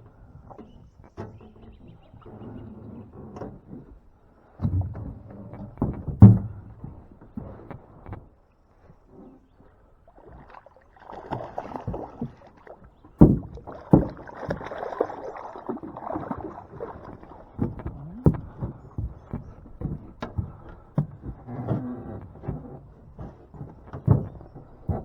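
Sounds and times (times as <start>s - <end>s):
water sloshing around boat: 0.0s - 25.0s
loud knocks on boat: 4.6s - 6.8s, 13.2s - 15.1s.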